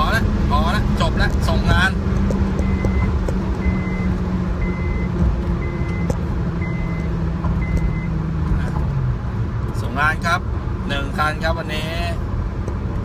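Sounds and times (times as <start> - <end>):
car engine and road drone: 0.0 - 13.0
dashboard warning beep: 2.6 - 8.1.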